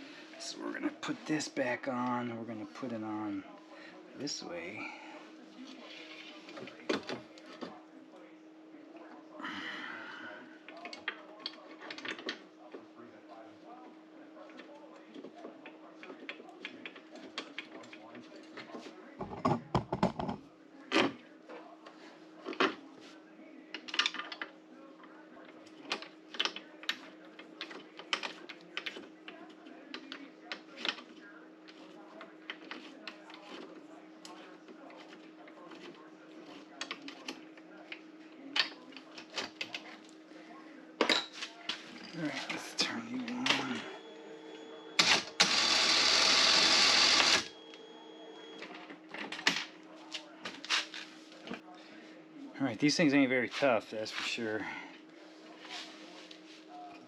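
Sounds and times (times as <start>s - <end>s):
faint steady hum: 0.0s - 57.0s
small electric motor buzzing: 45.0s - 47.5s.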